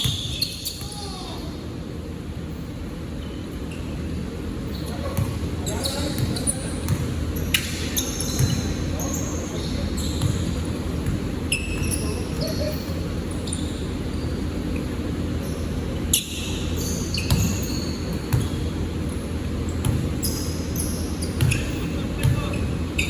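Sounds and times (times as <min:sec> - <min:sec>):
basketball bouncing on court: 0:00.0 - 0:01.0, 0:05.1 - 0:12.6, 0:17.2 - 0:22.8
sneaker squeaks: 0:00.0 - 0:01.6, 0:03.2 - 0:23.0
low rumble of the hall: 0:00.0 - 0:23.0.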